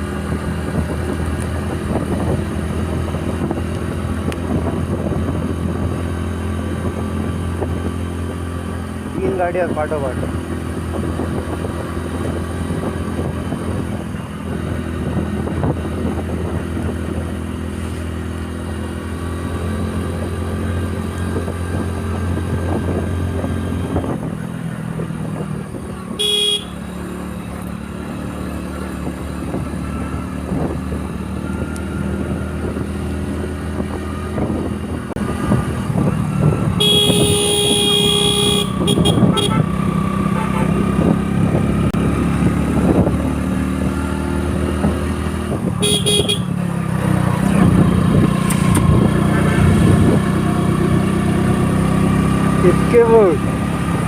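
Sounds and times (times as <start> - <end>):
motorcycle engine running: 0.0 - 54.0
road and traffic noise: 0.0 - 54.0
vehicle horn honking: 26.2 - 26.8, 36.8 - 40.8, 45.8 - 46.6.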